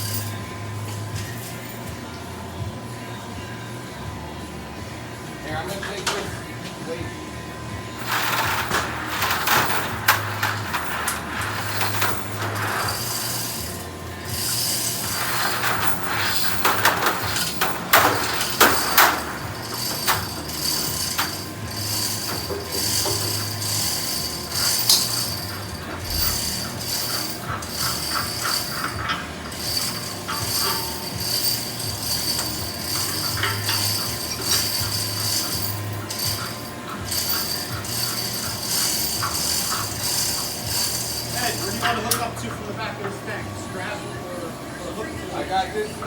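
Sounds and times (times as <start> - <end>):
low equipment hum: 0.0 - 46.0
rapid ratchet clicking: 8.0 - 42.3
metal clanks and scraping: 8.0 - 43.3.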